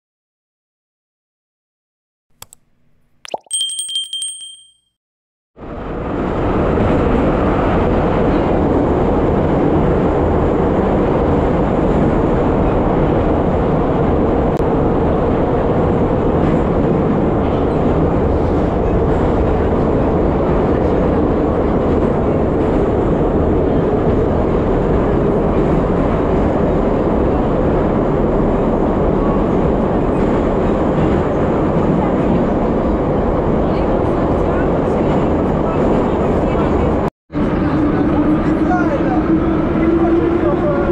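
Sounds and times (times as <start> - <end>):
subway train rumble and hiss: 5.6 - 40.9.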